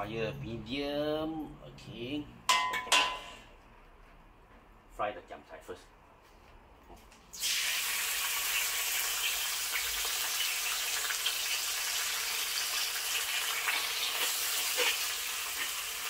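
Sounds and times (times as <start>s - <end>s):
greens sizzling in hot oil: 7.3s - 16.0s.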